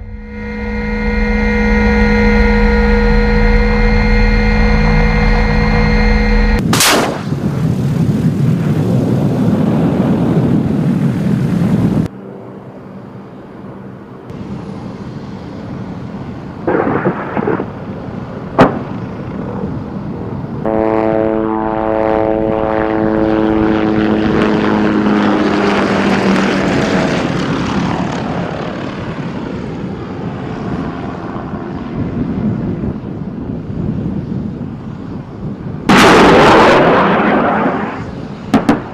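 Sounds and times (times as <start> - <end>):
aircraft passing: 0.0 - 6.7, 7.3 - 38.9
loud rushing aircraft engine: 0.0 - 38.9
sharp shot: 6.6 - 7.5, 18.6 - 19.0.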